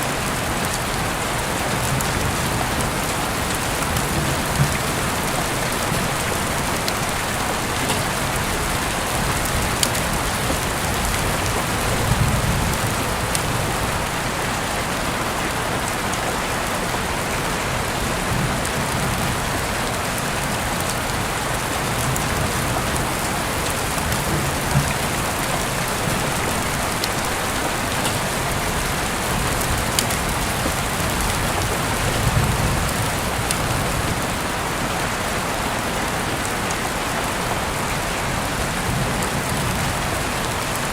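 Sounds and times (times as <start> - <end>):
heavy rain falling: 0.0 - 40.9
raindrops ticking: 0.1 - 14.3, 18.2 - 34.4.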